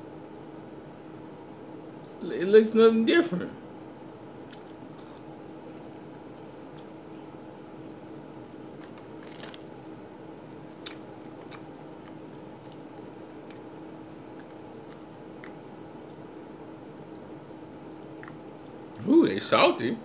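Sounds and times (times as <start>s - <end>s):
steady low hum: 0.0s - 20.0s
person chewing crunchy food: 4.4s - 7.3s, 8.0s - 16.6s, 18.1s - 18.8s.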